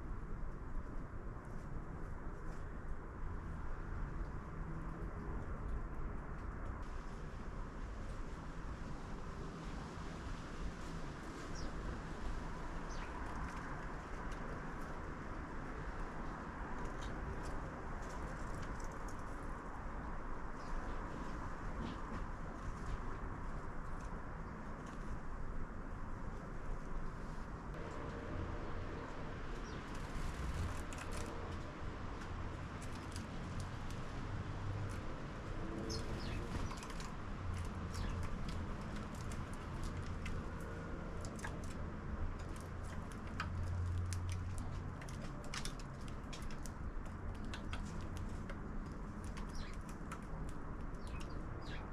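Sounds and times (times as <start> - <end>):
sparrows chirping: 11.4 - 11.8, 12.8 - 13.2, 29.6 - 30.7, 35.8 - 37.0, 37.8 - 38.4, 49.3 - 49.9, 50.9 - 51.9
faint bird sounds: 11.4 - 13.8, 35.7 - 37.1, 37.8 - 38.3, 48.9 - 50.2, 50.8 - 51.9.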